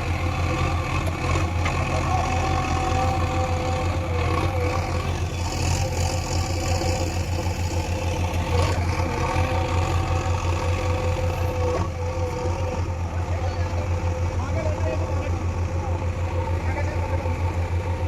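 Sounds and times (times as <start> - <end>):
diesel engine pulsing hum: 0.0 - 18.0.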